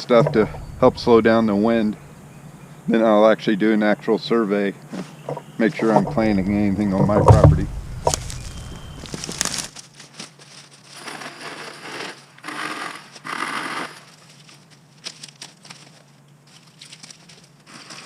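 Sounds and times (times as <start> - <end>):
dry brush crunching and crackling: 4.9 - 11.3, 14.0 - 18.0
twigs snapping: 5.8 - 10.7.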